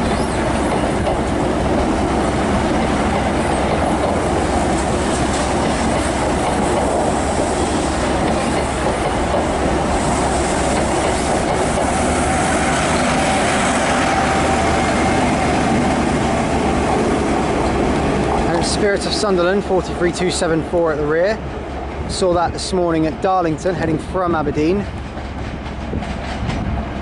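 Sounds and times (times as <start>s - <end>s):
wheels clattering over rail joints: 0.0s - 13.9s
train passing slowly: 0.0s - 27.0s.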